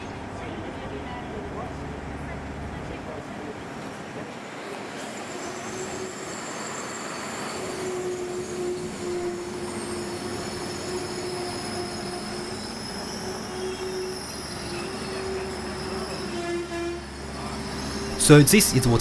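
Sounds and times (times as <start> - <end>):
diesel railcar running hum: 0.0 - 19.0
high-pitched wheel squealing: 4.5 - 19.0.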